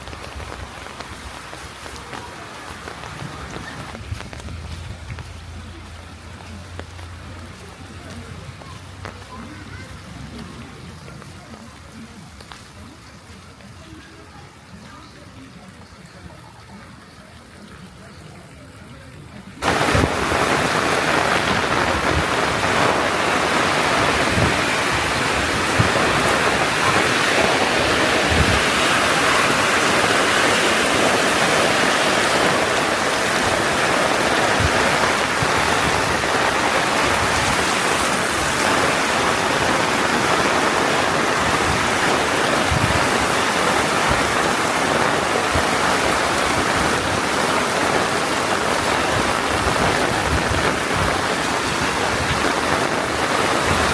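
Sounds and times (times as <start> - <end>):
thuds of raindrops: 0.0 - 13.0, 19.6 - 53.9
heavy rain hissing: 0.0 - 53.9.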